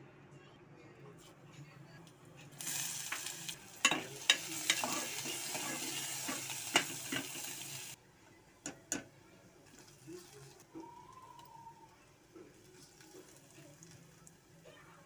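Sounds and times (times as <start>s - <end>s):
onions sizzling in hot oil: 2.5s - 8.0s.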